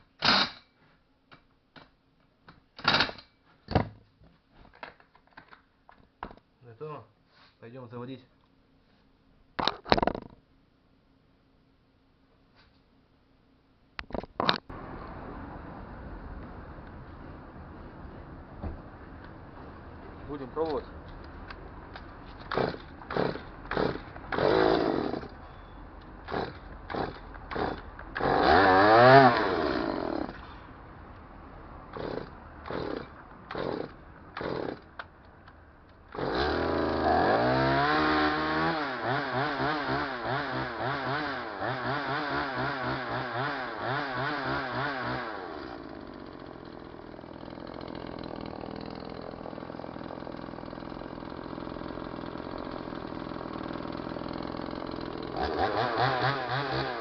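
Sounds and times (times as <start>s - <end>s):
chainsaw engine starting and running: 20.3s - 25.6s, 26.2s - 30.6s, 31.9s - 35.1s, 36.1s - 57.0s.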